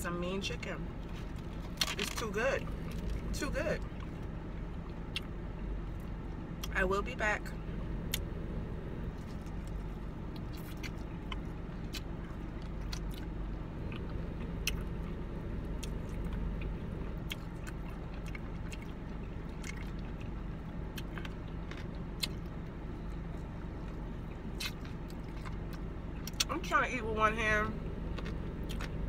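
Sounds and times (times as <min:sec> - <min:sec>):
steady low hum: 0:00.0 - 0:29.0
mouth crunch clicks: 0:05.1 - 0:05.3, 0:08.0 - 0:08.3, 0:09.4 - 0:15.1, 0:20.9 - 0:22.6, 0:24.3 - 0:26.5, 0:28.1 - 0:29.0
person chewing crunchy food: 0:09.0 - 0:26.5, 0:28.0 - 0:29.0.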